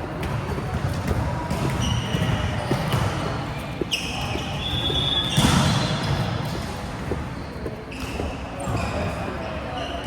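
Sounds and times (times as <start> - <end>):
volleyball thuds and bounces: 0.1 - 8.8
high shoe squeal: 1.7 - 6.4, 7.3 - 10.0.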